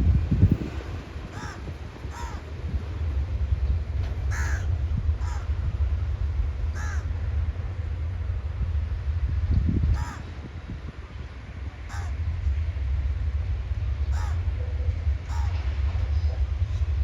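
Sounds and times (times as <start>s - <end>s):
low rumble: 0.0s - 17.0s
crow cawing: 1.3s - 2.4s, 4.3s - 5.5s, 6.8s - 7.1s, 10.0s - 10.3s, 11.9s - 12.2s, 14.1s - 14.4s, 15.3s - 15.6s.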